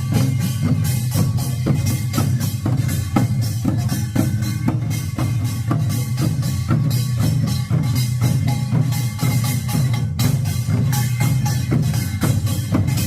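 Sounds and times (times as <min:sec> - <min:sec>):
barrel drums playing driving beat: 0:00.0 - 0:13.0.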